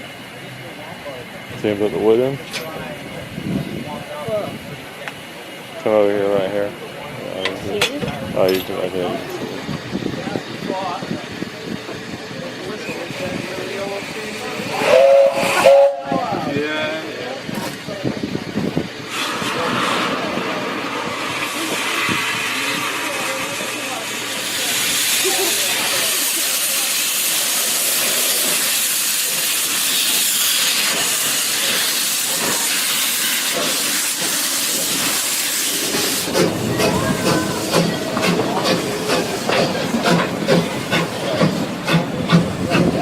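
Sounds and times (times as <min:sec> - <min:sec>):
steam venting hiss: 0:08.4 - 0:16.6, 0:18.0 - 0:43.0.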